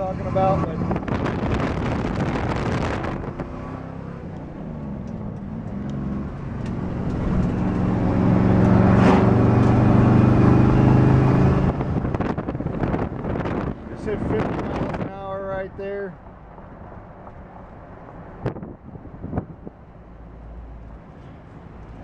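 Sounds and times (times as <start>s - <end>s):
car engine accelerating: 0.0s - 15.1s.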